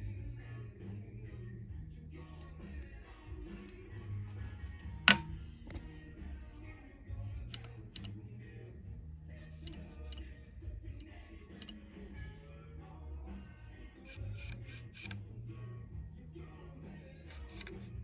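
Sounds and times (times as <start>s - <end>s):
background music with low beat: 0.0s - 18.0s
sharp clicks: 7.4s - 8.2s, 11.0s - 11.8s, 14.1s - 15.2s.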